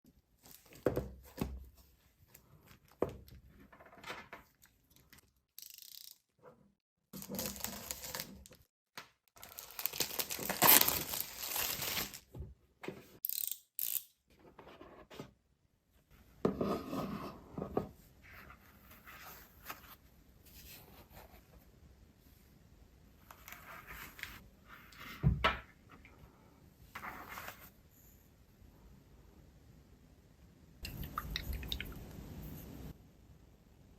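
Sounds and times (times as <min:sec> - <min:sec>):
paper rustling and scraping: 0:07.2 - 0:08.6, 0:09.4 - 0:12.3.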